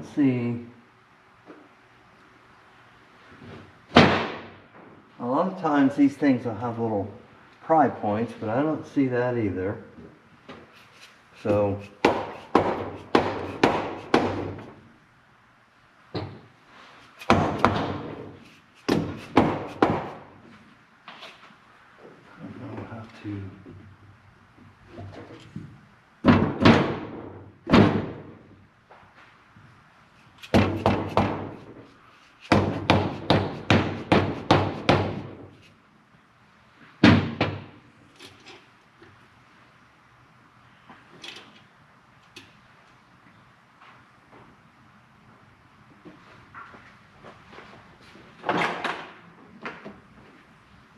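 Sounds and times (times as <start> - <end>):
hammer knocking on metal: 12.0 - 14.6, 18.9 - 20.2, 30.5 - 31.6, 32.5 - 35.4.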